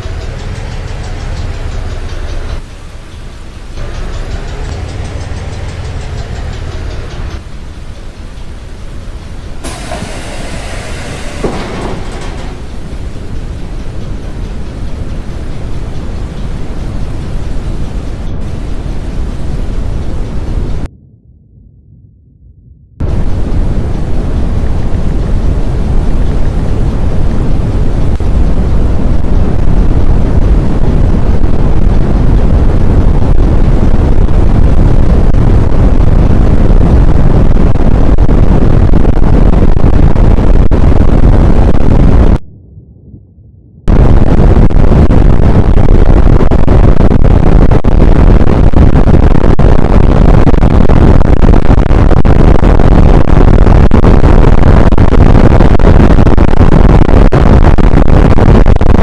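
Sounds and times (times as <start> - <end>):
wind buffeting microphone: 0.0 - 20.9, 23.0 - 59.0.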